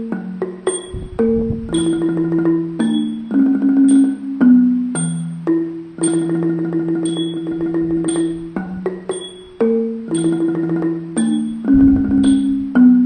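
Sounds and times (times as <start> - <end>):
xylophones playing a melody: 0.0 - 13.0
gong circle with rapid strikes: 11.7 - 13.0.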